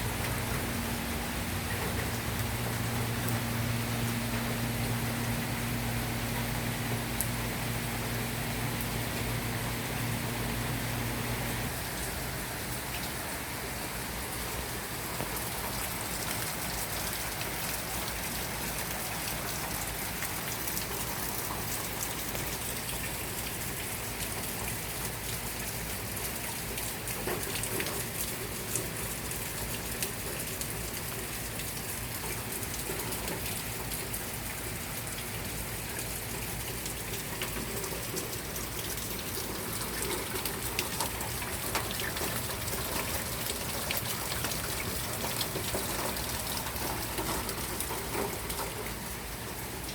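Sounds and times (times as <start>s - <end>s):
low hum: 0.0s - 11.7s
steady rain falling: 0.0s - 49.9s.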